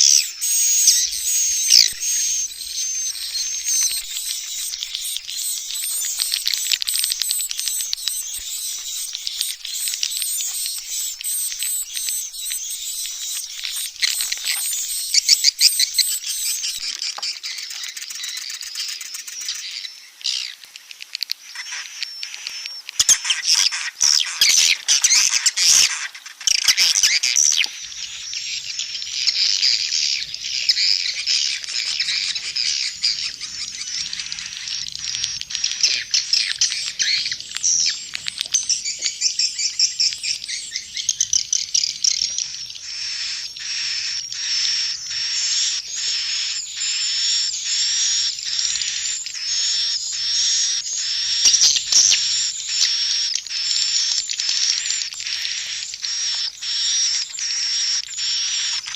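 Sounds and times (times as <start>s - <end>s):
swiftlets twittering: 0.0s - 16.9s.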